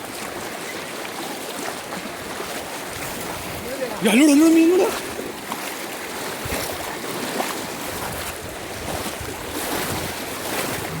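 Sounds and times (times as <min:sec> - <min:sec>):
wind on microphone: 0:07.8 - 0:11.0.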